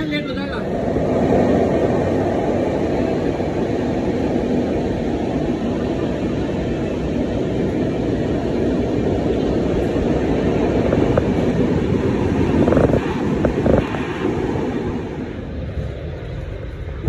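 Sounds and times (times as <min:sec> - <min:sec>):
train rumbling slowly: 0:00.0 - 0:17.0.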